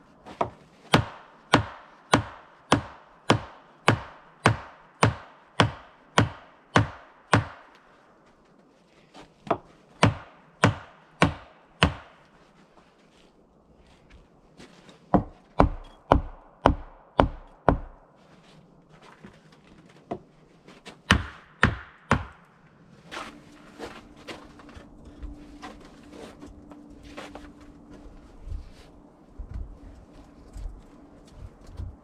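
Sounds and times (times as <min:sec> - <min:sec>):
faint steady hum: 0:00.0 - 0:32.0
axe chopping log: 0:00.3 - 0:07.7, 0:09.5 - 0:12.2, 0:15.1 - 0:18.0, 0:21.1 - 0:22.4.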